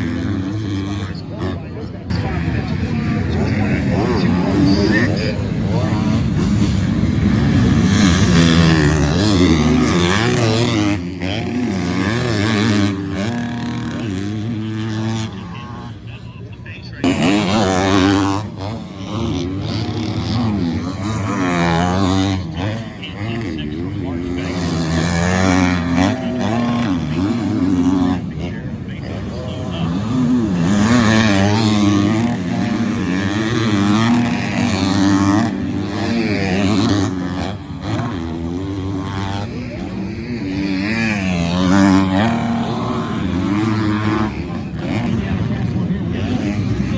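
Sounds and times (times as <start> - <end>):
motocross bikes revving: 0.0 - 46.9.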